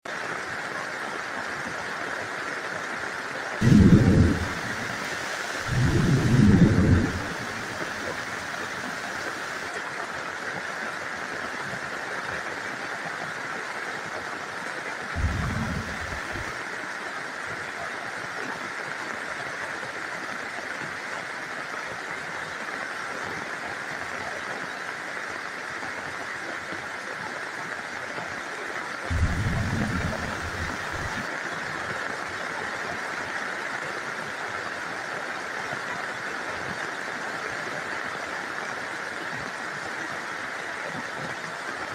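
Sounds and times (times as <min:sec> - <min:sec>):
steady rain: 0:00.0 - 0:41.9
low thunder rumbles: 0:03.6 - 0:09.7, 0:15.2 - 0:16.5, 0:29.1 - 0:31.3.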